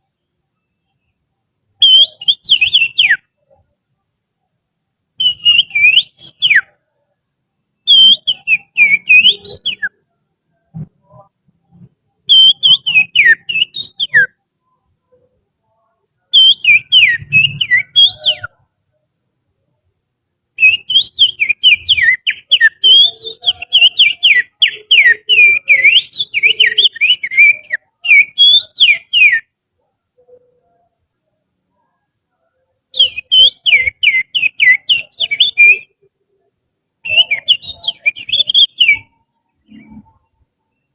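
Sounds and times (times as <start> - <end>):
finger whistling birdsong: 1.8 - 3.3, 5.2 - 6.8, 7.8 - 10.0, 12.2 - 14.4, 16.3 - 18.6, 20.6 - 29.5, 32.9 - 35.9, 37.0 - 39.2.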